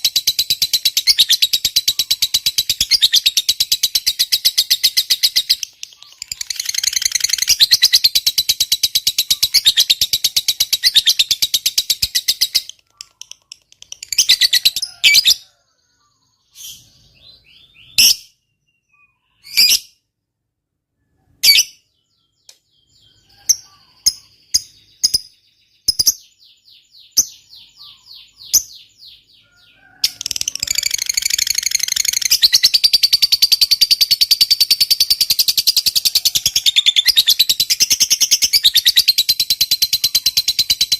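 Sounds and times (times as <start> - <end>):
lovebird chattering trill: 0.0 - 15.5, 23.3 - 26.4, 27.1 - 29.2, 30.0 - 40.9
bird chirps and squawks: 1.0 - 8.2, 8.8 - 15.5, 27.2 - 33.9.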